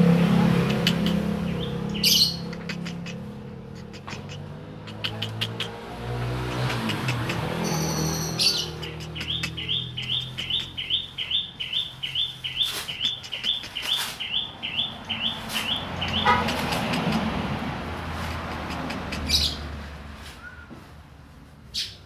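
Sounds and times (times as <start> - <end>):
bird chirping: 0.6 - 5.8, 6.5 - 17.2.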